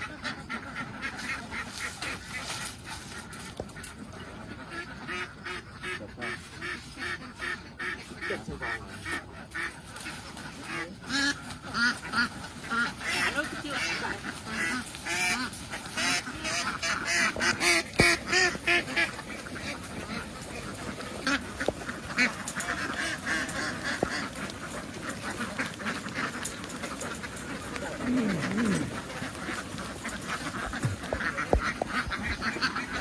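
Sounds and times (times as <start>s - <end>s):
flock of ducks quacking: 0.0s - 33.0s.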